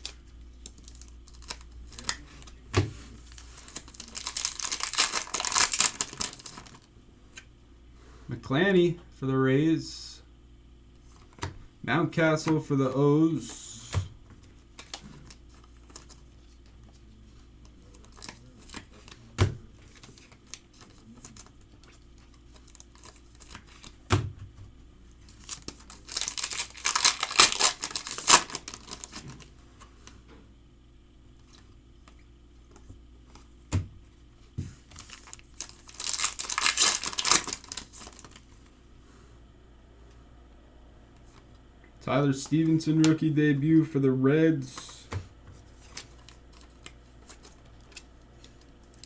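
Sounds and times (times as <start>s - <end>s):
card pack wrappers tearing: 0.0s - 6.9s, 17.8s - 24.0s, 25.3s - 29.5s, 35.0s - 38.4s.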